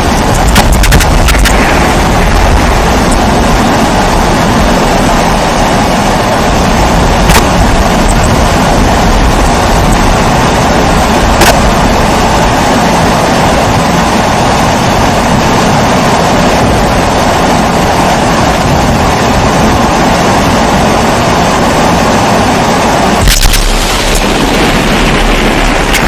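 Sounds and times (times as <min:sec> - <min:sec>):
sharp clicks: 0:00.1 - 0:01.6, 0:23.2 - 0:24.3.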